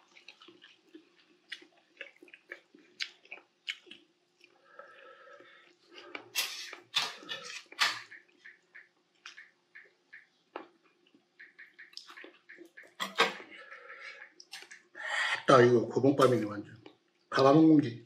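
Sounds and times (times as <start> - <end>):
wet chewing and lip-smacking: 0.0 - 4.6, 5.4 - 13.5.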